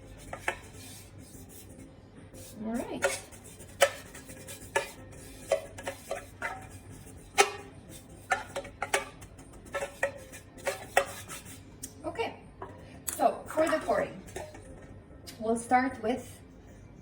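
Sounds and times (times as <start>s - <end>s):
utensil scraping mixing bowl: 0.0s - 11.6s, 13.5s - 14.8s.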